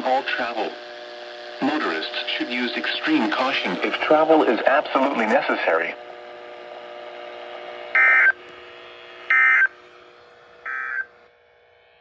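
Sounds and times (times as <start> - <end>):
faint radio hum: 0.0 - 0.8, 1.6 - 6.6.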